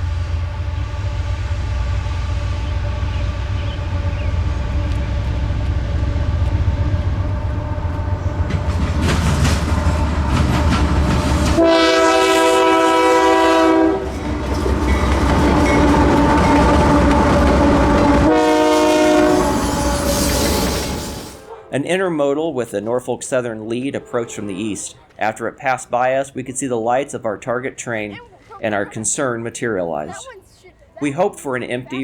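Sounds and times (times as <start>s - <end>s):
train wheels rumbling on rail: 0.0s - 21.5s
locomotive air horn blasts: 9.9s - 14.3s, 15.6s - 21.8s.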